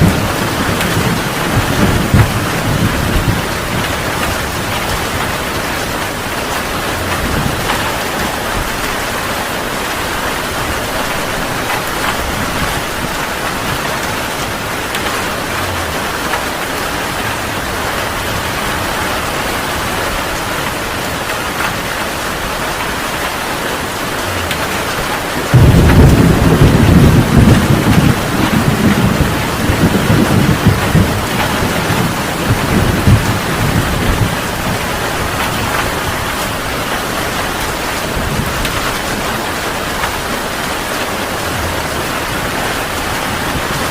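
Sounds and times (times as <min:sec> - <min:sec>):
heavy rain: 0:00.0 - 0:43.9
thunder clap rumbling: 0:00.0 - 0:43.9.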